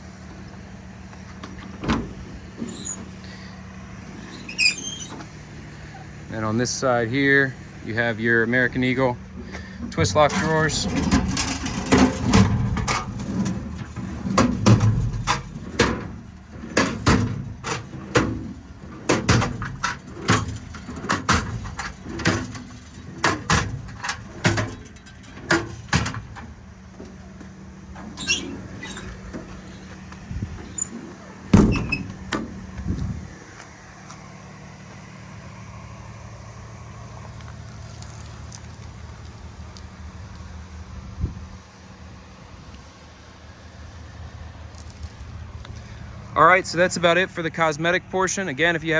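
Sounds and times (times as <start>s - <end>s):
metal drawers opening and shutting: 1.3s - 6.2s, 8.8s - 33.4s
compartment banging shut: 1.4s - 3.1s, 9.5s - 27.2s, 28.0s - 32.7s
latches clacking: 9.4s - 32.9s.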